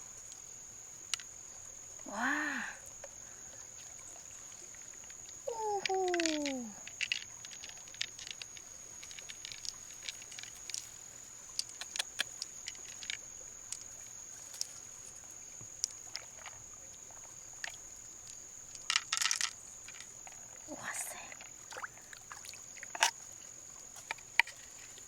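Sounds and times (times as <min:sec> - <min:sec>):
light clicks and taps: 0:05.8 - 0:16.6.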